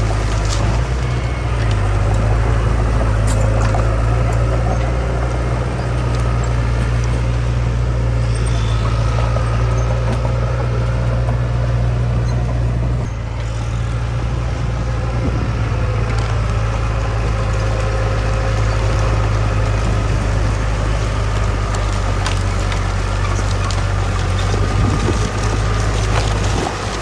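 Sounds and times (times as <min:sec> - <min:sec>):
diesel engine droning: 0:00.0 - 0:27.0.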